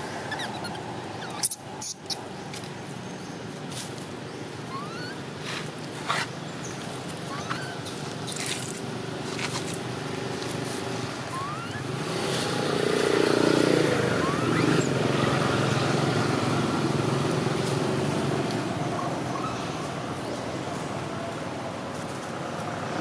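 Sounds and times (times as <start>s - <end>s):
high rising squeaks: 0.2s - 2.2s, 4.7s - 5.2s, 11.3s - 12.6s, 13.7s - 15.4s.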